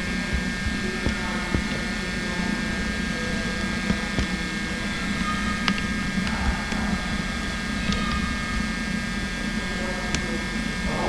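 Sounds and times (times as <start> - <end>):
faint clicks and knocks: 0.0 - 9.0
electrical hum: 0.0 - 11.0.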